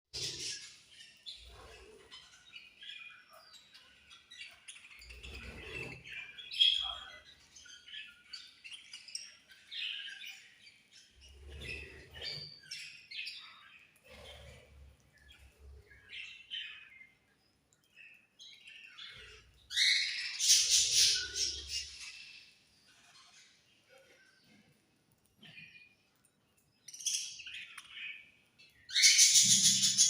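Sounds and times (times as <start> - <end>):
budgerigars chirping: 19.0 - 22.2, 28.9 - 30.0.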